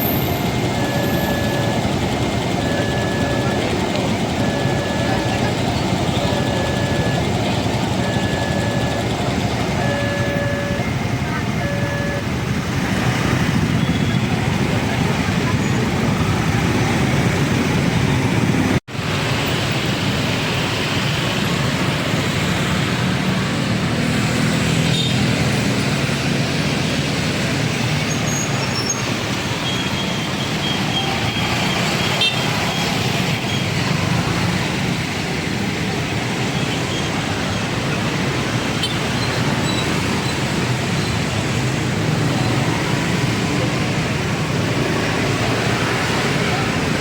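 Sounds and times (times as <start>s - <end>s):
road traffic passing: 0.0s - 47.0s.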